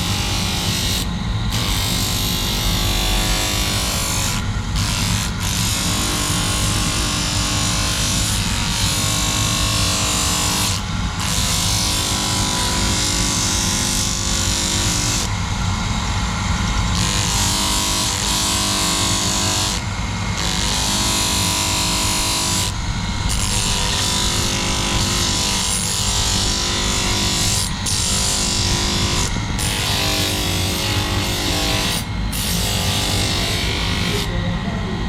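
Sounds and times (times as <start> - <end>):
electric grinder grinding steel: 0.0 - 34.4.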